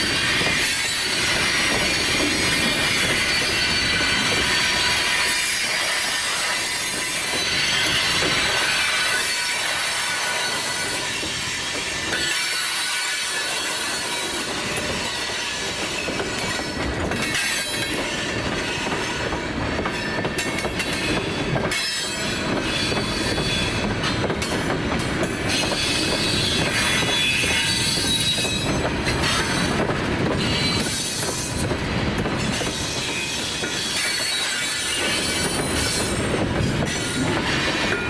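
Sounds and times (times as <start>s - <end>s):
wheel squeal on curved track: 0.0s - 11.6s
freight train wheels clacking: 0.0s - 38.0s.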